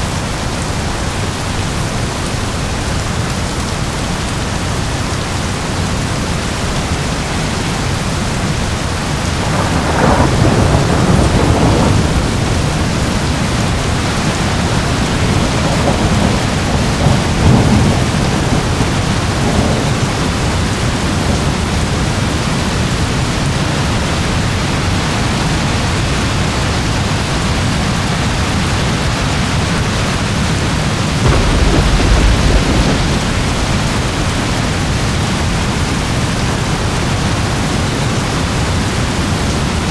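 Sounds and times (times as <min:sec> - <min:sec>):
heavy rain: 0:00.0 - 0:39.9
thunder rumbling: 0:07.1 - 0:27.3, 0:28.5 - 0:39.9.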